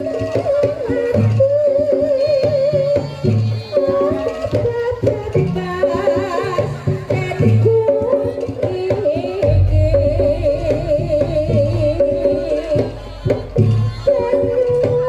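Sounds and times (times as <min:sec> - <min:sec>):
drums beating rhythm: 0:05.0 - 0:15.0.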